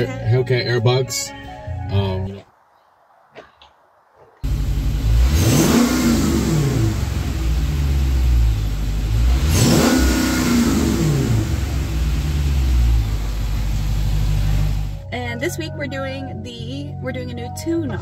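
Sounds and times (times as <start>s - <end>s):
car engine revving: 4.4s - 15.0s.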